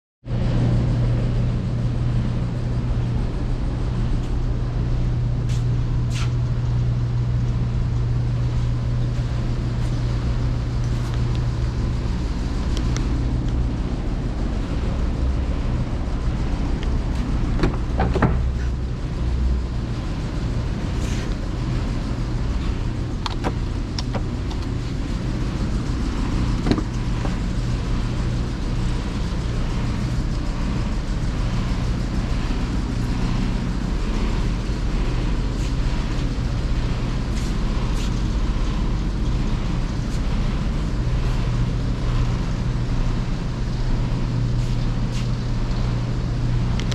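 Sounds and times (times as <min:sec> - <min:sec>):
car engine idling: 0:00.4 - 0:46.9
sharp clicks and knocks: 0:17.6 - 0:18.8, 0:23.2 - 0:24.7, 0:26.6 - 0:27.4.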